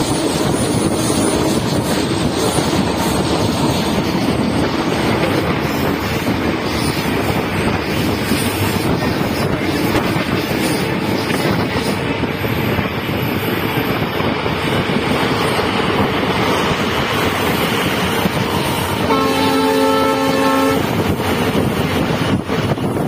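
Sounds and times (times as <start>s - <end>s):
train coach rolling: 0.0s - 23.0s
wind noise: 0.0s - 23.0s
diesel locomotive horn: 18.8s - 21.2s.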